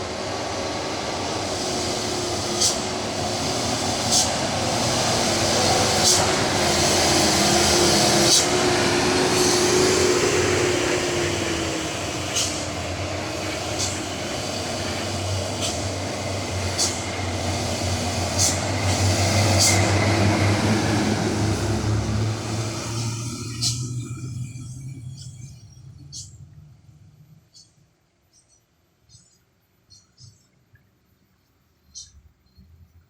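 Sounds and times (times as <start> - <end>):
diesel truck engine under load: 0.0 - 25.2.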